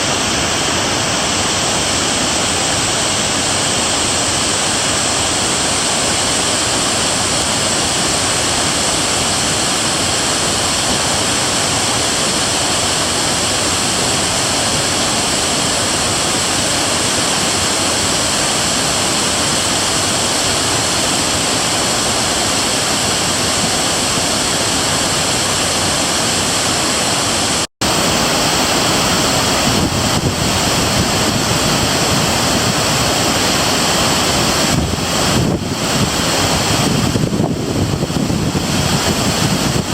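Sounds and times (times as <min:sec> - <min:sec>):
waterfall rushing: 0:00.0 - 0:39.9
wind buffeting microphone: 0:27.9 - 0:39.9.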